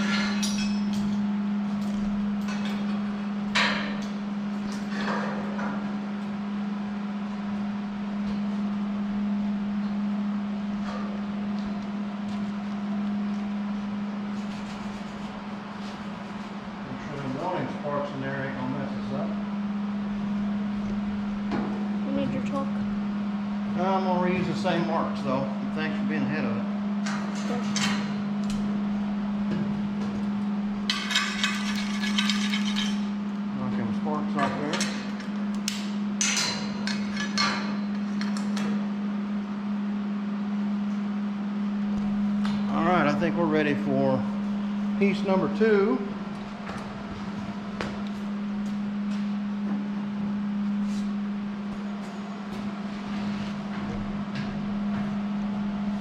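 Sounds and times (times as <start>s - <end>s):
steady low hum: 0.0s - 56.0s
metal pieces knocking and clanking: 30.9s - 33.1s.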